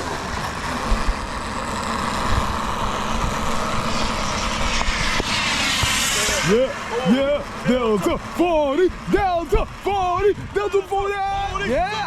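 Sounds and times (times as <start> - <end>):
model airplane engine: 0.0 - 12.0.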